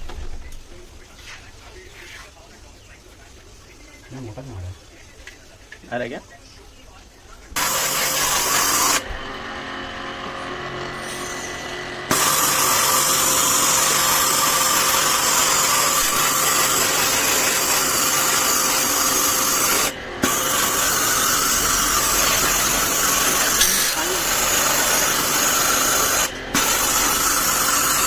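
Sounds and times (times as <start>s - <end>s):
pressure washer pump humming: 7.5s - 28.0s
water spraying hiss: 20.2s - 27.5s.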